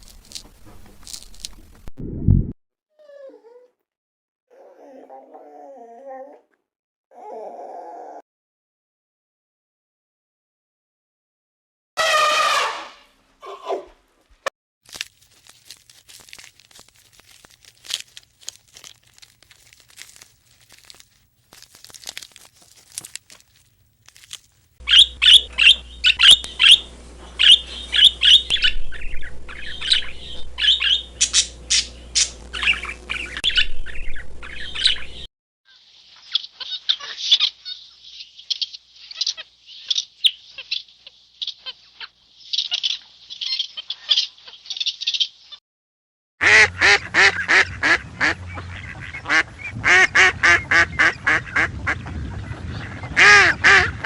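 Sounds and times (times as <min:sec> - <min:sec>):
bird chirps and squawks: 0:24.8 - 0:35.2, 0:36.3 - 0:45.3.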